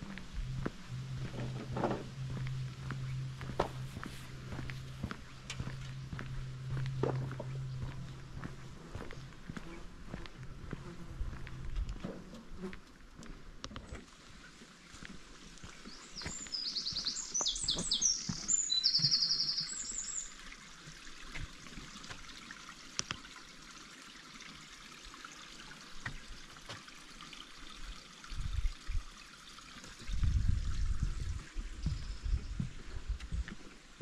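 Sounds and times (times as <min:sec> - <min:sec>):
faint outdoor hiss: 0:00.0 - 0:34.0
low rumbling knocks: 0:00.4 - 0:09.0
songbird trilling: 0:15.9 - 0:20.3.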